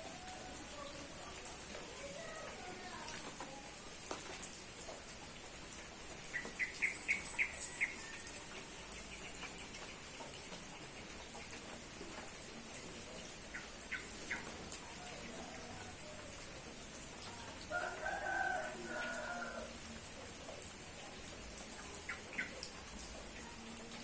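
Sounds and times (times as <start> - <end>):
rain hiss: 0.0 - 24.0
rooster crowing: 17.7 - 19.8.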